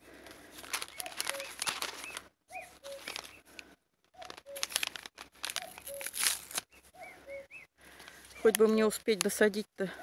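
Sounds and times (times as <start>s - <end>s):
close rustling and scraping: 0.2s - 6.9s.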